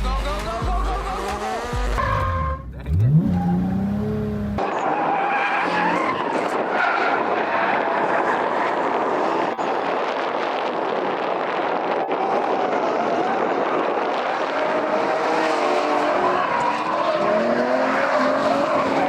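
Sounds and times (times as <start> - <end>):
car engine revving: 0.1 - 19.0
tyres screeching: 1.0 - 7.2.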